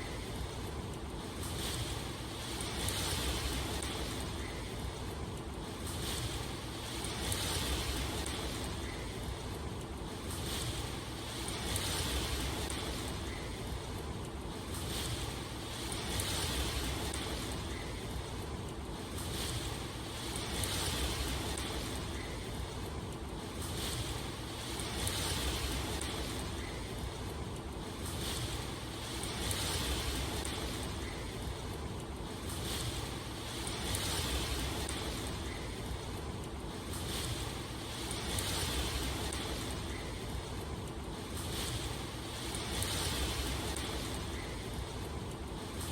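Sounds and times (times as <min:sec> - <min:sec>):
rushing water: 0:00.0 - 0:45.9.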